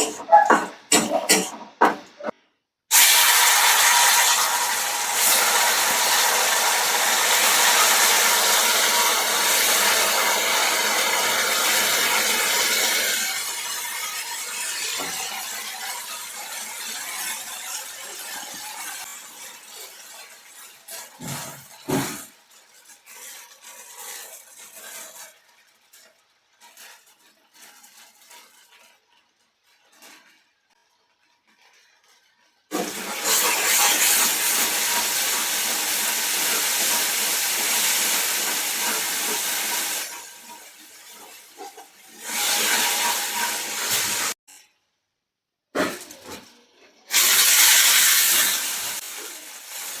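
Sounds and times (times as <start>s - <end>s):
food sizzling in a pan: 2.9s - 25.4s, 32.7s - 44.4s, 47.1s - 50.0s.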